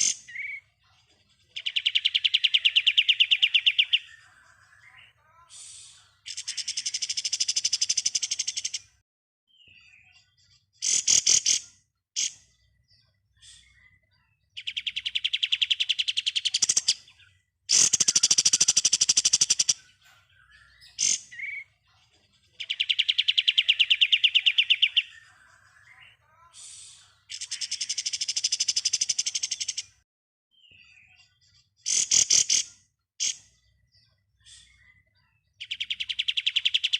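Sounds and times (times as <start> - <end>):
bird rapid trilling: 17.7 - 20.0, 31.8 - 33.4.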